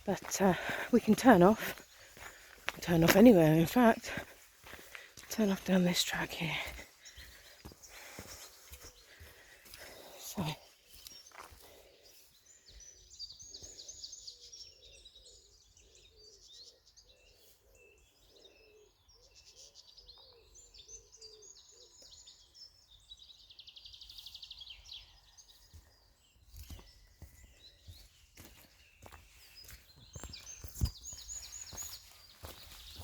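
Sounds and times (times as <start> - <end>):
faint footsteps on a track: 0.0 - 10.2, 10.9 - 12.3, 25.5 - 33.0
songbirds singing: 0.0 - 33.0.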